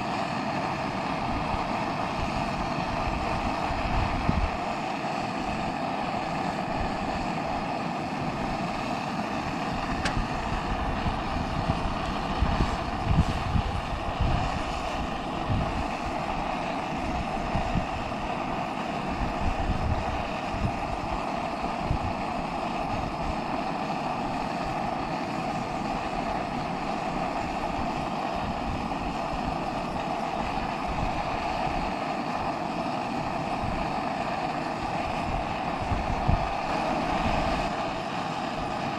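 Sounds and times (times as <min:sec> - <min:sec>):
steady rushing hiss: 0:00.0 - 0:38.9
wind buffeting the microphone: 0:00.9 - 0:05.7, 0:06.4 - 0:23.6, 0:33.2 - 0:38.9.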